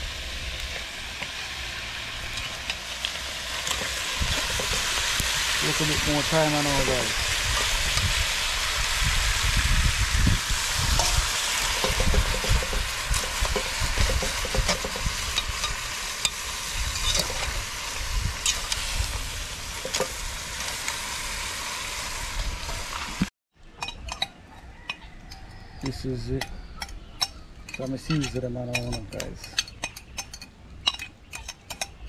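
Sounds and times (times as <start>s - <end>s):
seafood sizzling in a pot: 0.0s - 23.3s
metal utensil clicking against pot: 23.8s - 32.0s.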